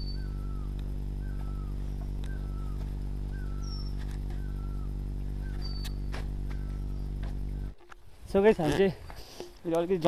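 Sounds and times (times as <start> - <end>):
bird calling slurred note: 0.0 - 7.8
steady low hum: 0.0 - 10.0.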